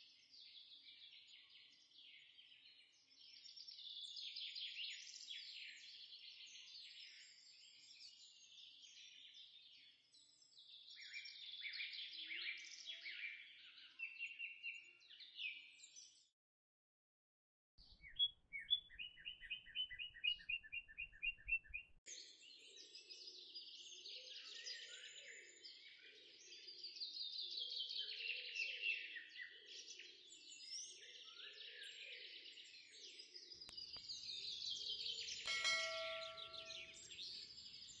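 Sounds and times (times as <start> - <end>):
birds chirping and singing: 30.6 - 38.0
short bell-like chime: 35.5 - 37.1.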